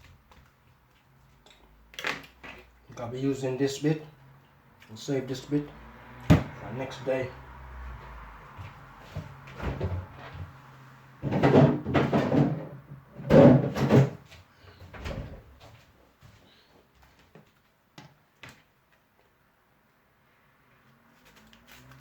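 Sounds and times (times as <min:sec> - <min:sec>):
loud kitchen clattering: 0:11.2 - 0:14.2.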